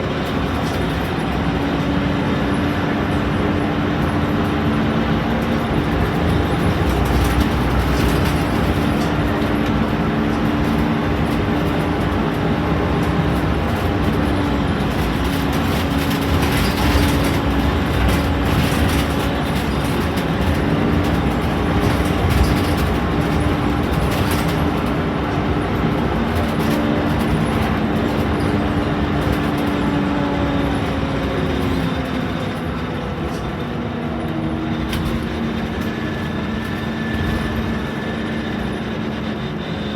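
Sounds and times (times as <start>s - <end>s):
bus diesel engine running: 0.0s - 39.9s
body rattles: 5.3s - 33.6s.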